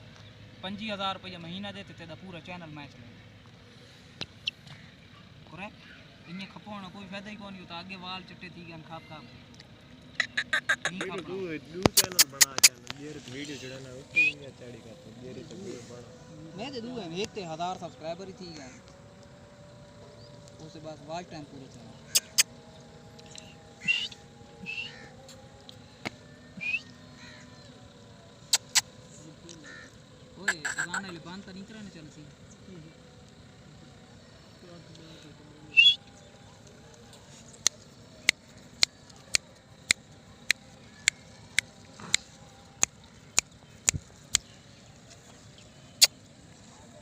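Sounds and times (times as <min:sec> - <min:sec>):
sharp clicks: 0:11.8 - 0:13.0, 0:22.1 - 0:22.5, 0:28.5 - 0:28.9, 0:42.8 - 0:44.5.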